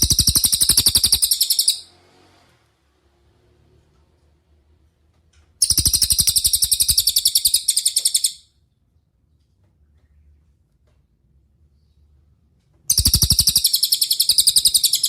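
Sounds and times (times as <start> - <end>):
bird singing high trill: 0.0 - 1.9, 5.6 - 8.5, 12.9 - 15.0.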